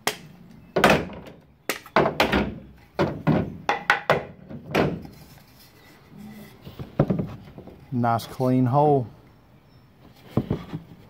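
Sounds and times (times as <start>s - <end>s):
wooden knocks and thunks: 0.7s - 5.2s, 6.8s - 7.8s, 10.3s - 11.0s.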